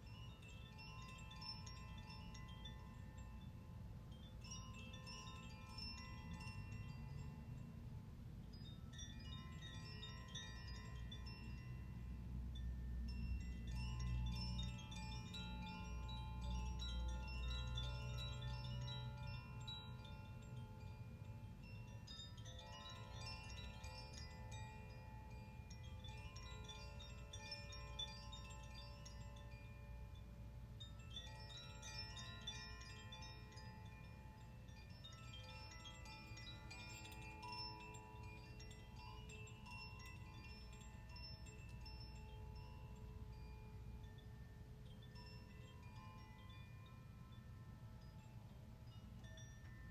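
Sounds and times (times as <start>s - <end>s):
chimes tinkling: 0.0s - 49.9s.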